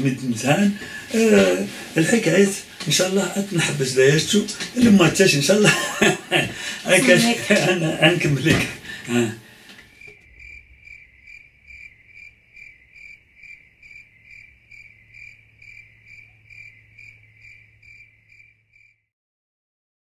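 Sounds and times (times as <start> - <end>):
faint low hum: 0.0 - 18.7
cricket chirping: 9.9 - 19.1.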